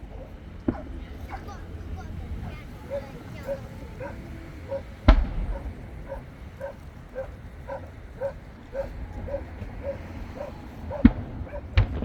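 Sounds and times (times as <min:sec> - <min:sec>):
dog barking: 0:00.0 - 0:12.0
firework bang: 0:05.0 - 0:06.6, 0:11.0 - 0:12.0.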